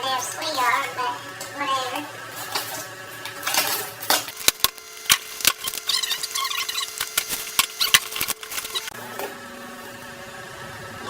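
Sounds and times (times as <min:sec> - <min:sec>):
plastic wrap crinkling: 0:02.4 - 0:08.9.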